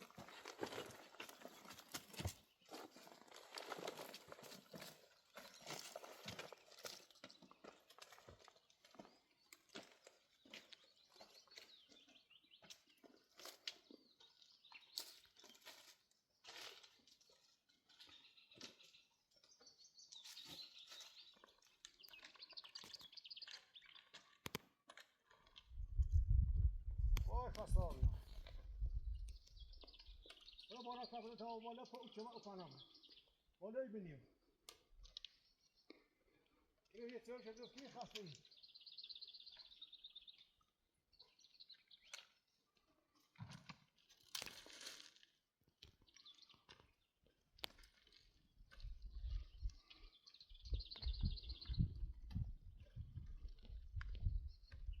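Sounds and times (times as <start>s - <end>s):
soft crunches and crackles: 0.0s - 10.8s, 43.2s - 46.9s, 47.6s - 50.0s
songbird chirping: 0.0s - 43.3s, 45.8s - 55.0s
small bird trill: 37.4s - 42.2s, 49.1s - 52.4s.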